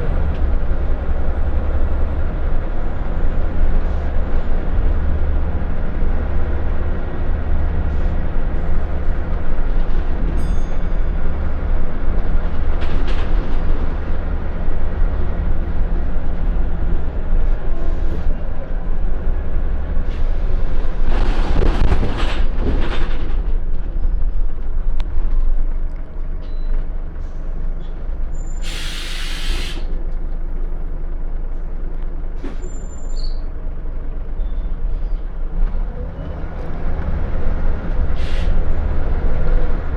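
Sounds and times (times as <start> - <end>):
bus diesel engine running: 0.0 - 39.9
air brake hiss: 28.4 - 30.0, 38.2 - 38.6.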